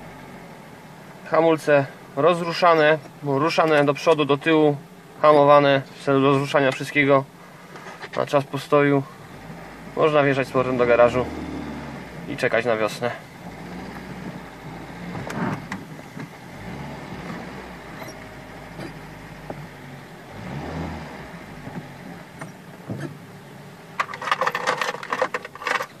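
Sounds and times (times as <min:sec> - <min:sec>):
car engine idling: 0:00.0 - 0:26.0
rapid mechanical clicks and rattles: 0:24.0 - 0:26.0.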